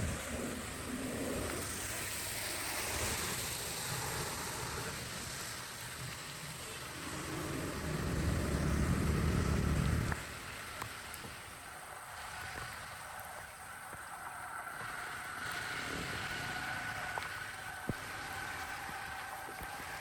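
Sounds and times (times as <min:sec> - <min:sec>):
water rushing: 0:00.0 - 0:20.0
low rumble: 0:07.0 - 0:10.2.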